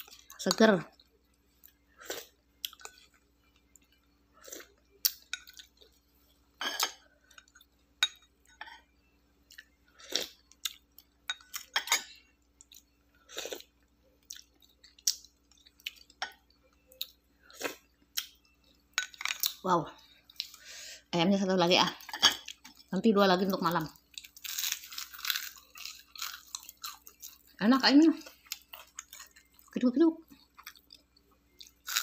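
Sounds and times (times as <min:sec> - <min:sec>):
person chewing food: 0:01.0 - 0:06.0, 0:09.4 - 0:11.8, 0:12.4 - 0:20.6, 0:24.0 - 0:27.6, 0:28.2 - 0:29.7, 0:30.3 - 0:32.0.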